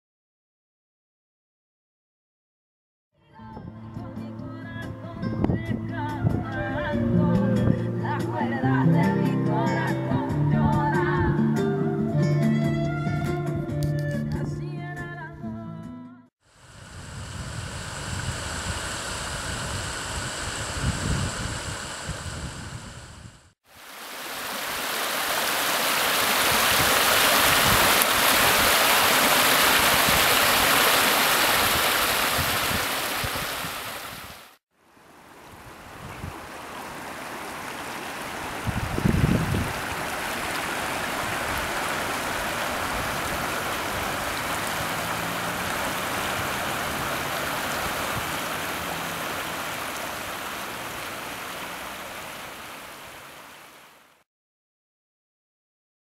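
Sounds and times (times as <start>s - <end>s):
rushing water: 23.6s - 54.2s.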